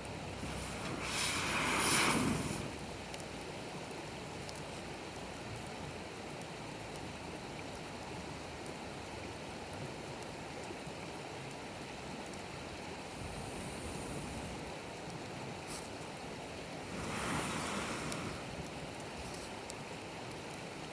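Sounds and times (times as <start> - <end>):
bonfire crackles: 0.0 - 20.9
steady rushing noise: 0.2 - 3.2, 13.1 - 14.7, 16.7 - 19.4.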